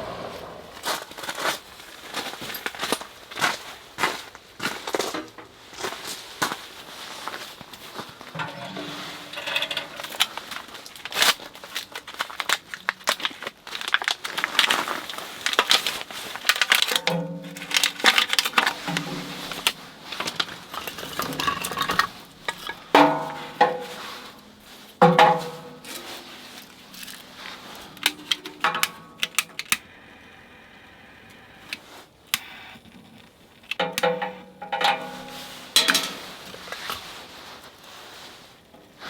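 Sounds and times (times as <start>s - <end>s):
metal camping gear clanking: 5.0s - 29.9s, 33.6s - 39.0s
sharp ringing metal hits: 33.8s - 36.4s.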